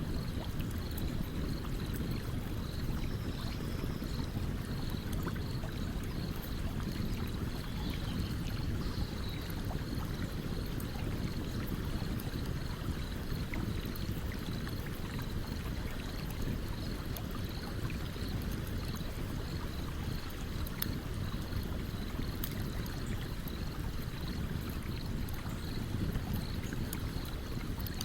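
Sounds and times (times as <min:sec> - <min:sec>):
campfire crackles and pops: 0:13.5 - 0:28.0.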